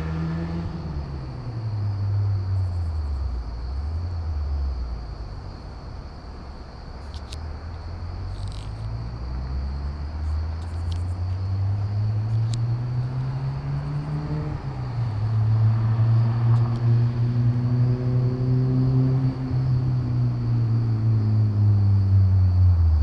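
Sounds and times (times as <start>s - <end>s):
car exhaust accelerating: 7.8s - 23.0s.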